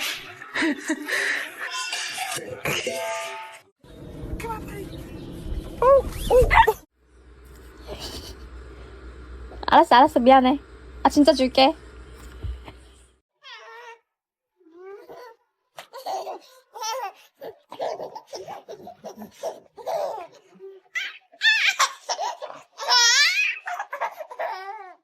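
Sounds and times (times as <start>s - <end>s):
person laughing hard: 7.9s - 8.4s.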